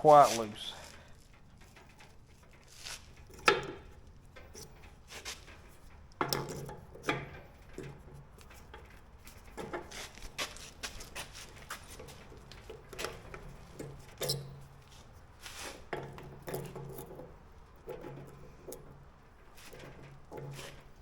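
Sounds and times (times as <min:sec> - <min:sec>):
metal pins and tools clinking: 0:01.3 - 0:09.9, 0:12.1 - 0:14.7.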